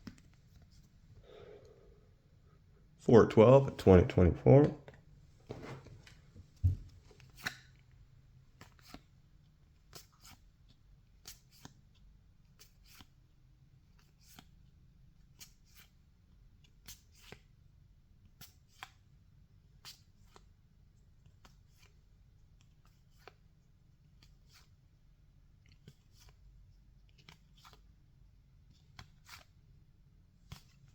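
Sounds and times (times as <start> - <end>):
soft low thump: 6.6 - 7.0
cards flipped by hand: 7.2 - 7.7, 8.6 - 9.0, 27.2 - 27.8.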